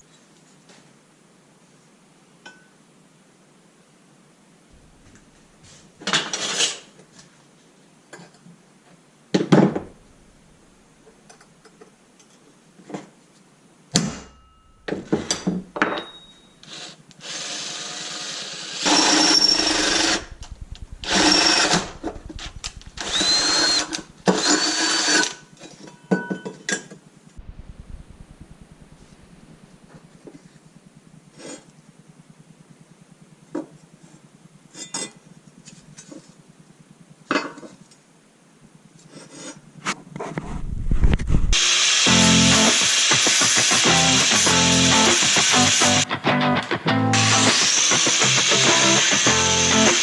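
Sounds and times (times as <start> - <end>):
power tool bursts: 16.7 - 25.4, 41.6 - 46.0, 47.2 - 50.0.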